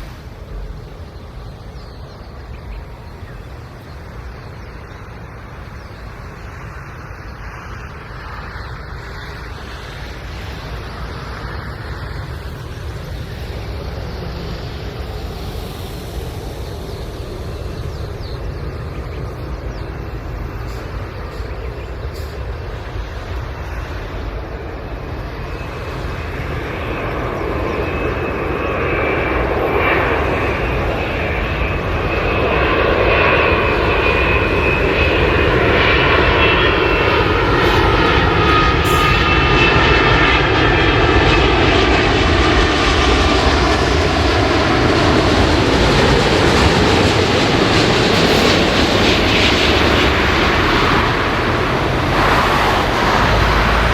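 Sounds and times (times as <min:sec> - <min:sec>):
jet airliner engine noise: 0:00.0 - 0:53.9
high whine: 0:43.6 - 0:53.9.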